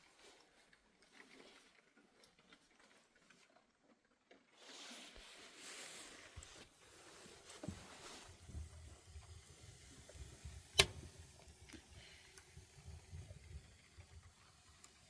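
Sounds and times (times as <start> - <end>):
soft hiss: 4.9 - 15.0.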